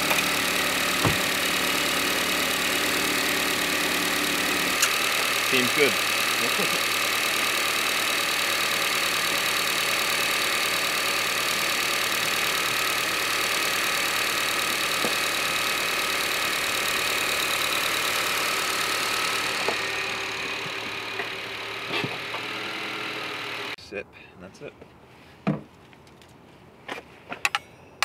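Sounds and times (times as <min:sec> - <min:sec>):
car engine idling: 0:00.0 - 0:23.8.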